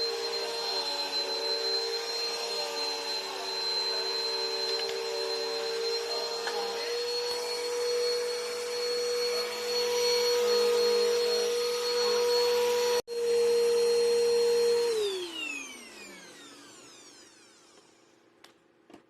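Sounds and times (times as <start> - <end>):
vacuum motor whine: 0.0 - 18.2.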